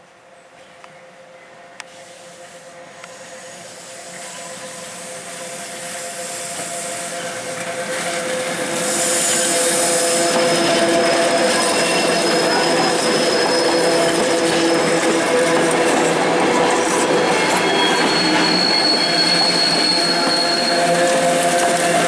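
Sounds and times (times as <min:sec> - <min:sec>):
electric train approaching: 0:00.6 - 0:22.0.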